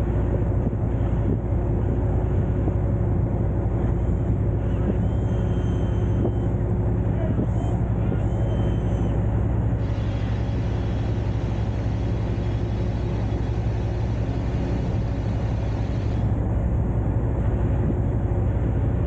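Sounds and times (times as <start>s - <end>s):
truck diesel engine running: 9.8s - 16.4s.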